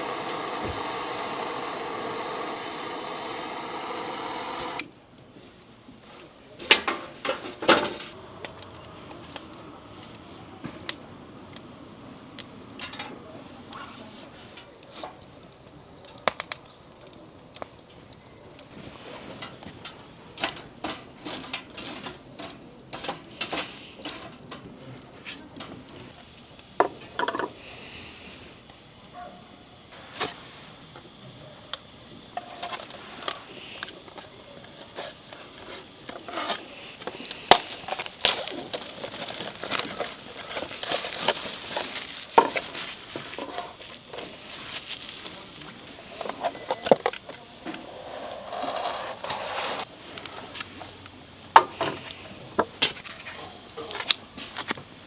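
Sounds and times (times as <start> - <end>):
hissing: 0.0 - 4.9.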